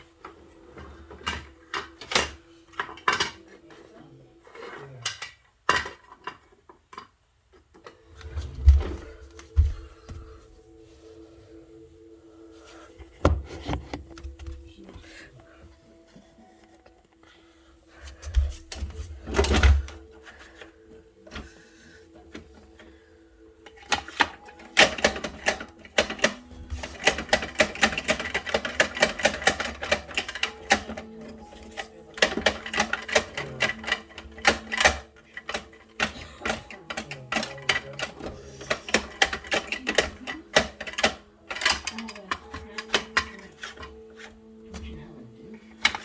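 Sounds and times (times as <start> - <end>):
rapid plastic clicks and rattles: 23.6 - 44.0.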